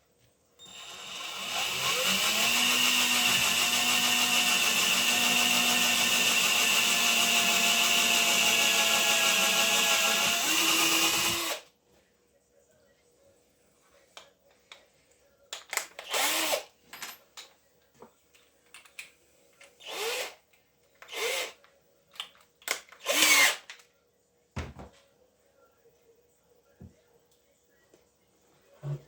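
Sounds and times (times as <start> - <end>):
small power tool motor: 0.6 - 11.6.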